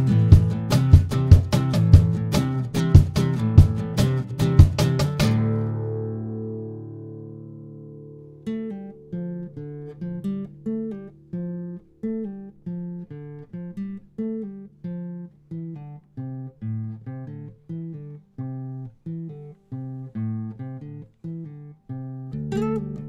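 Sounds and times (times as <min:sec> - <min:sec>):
acoustic guitar picked melody: 0:00.0 - 0:23.0.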